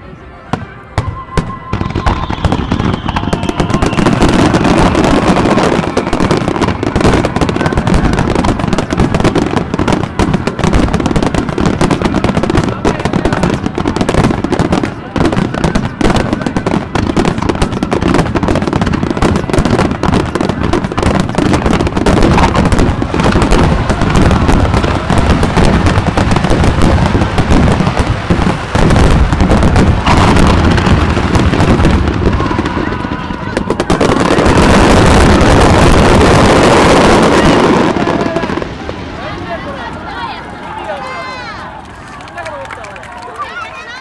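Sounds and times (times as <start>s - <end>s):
fireworks bursts and crackling: 0.4s - 44.0s
steady rushing noise: 21.8s - 41.9s.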